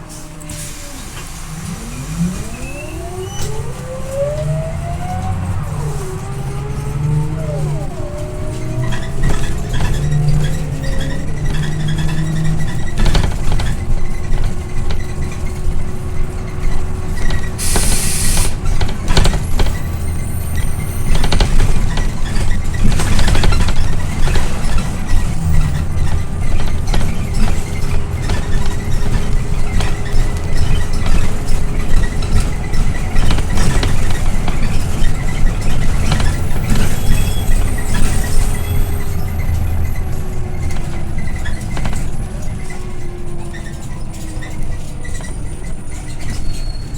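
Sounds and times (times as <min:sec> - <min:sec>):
bus engine and road rumble: 0:00.0 - 0:46.9
body rattles and knocks: 0:06.1 - 0:17.6, 0:18.6 - 0:38.6, 0:39.3 - 0:46.6
compressed air hiss: 0:17.6 - 0:18.6.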